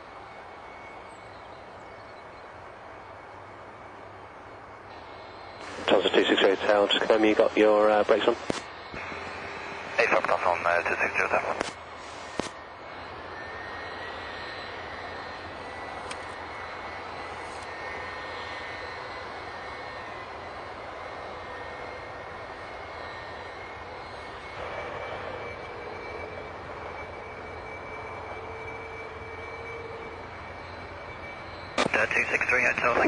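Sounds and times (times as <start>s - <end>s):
jet engine whining: 0.0s - 33.0s.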